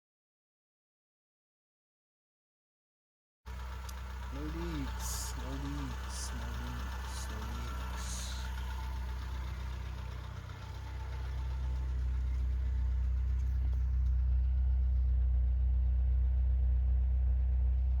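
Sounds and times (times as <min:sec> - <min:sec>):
car engine idling: 0:03.5 - 0:18.0.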